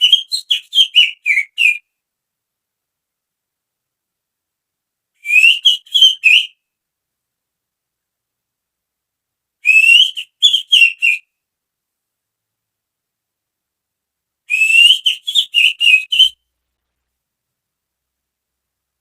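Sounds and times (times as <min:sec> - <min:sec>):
finger whistling bird call: 0:00.0 - 0:01.9, 0:05.2 - 0:06.6, 0:09.6 - 0:11.3, 0:14.5 - 0:16.4.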